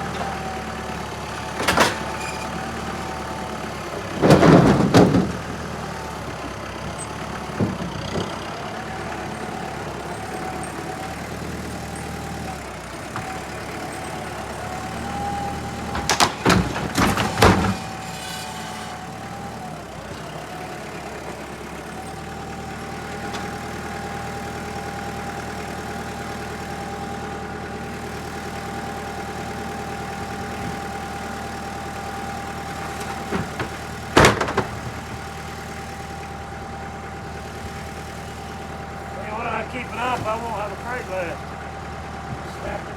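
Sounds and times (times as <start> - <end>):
firewood knocking and clattering: 0.0 - 3.1, 4.0 - 9.6, 14.8 - 18.4, 29.8 - 36.2
engine idling: 0.0 - 42.9.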